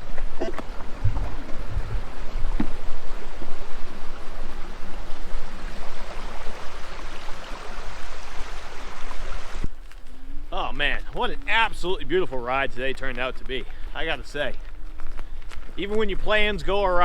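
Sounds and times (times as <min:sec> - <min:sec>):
electric unicycle rolling: 0:00.0 - 0:08.2, 0:09.6 - 0:17.0
wind on microphone: 0:00.0 - 0:09.8.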